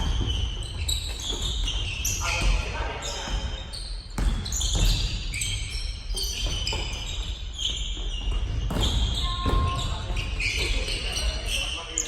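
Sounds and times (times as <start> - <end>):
basketball bouncing: 0.0 - 5.3, 6.3 - 10.3
sneakers squeaking on floor: 0.0 - 12.0.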